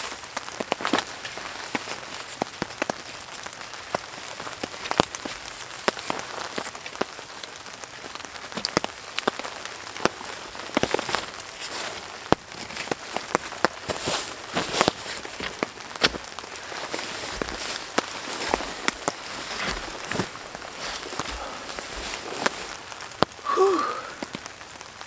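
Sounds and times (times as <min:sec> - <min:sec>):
heavy rain: 0:00.0 - 0:25.0
loud raindrops striking close: 0:00.0 - 0:25.0.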